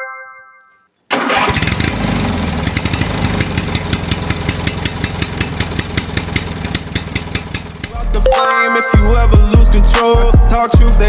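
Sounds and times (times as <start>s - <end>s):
engine running with rattling pulse: 1.2s - 8.1s
bell-like chime: 8.3s - 9.2s.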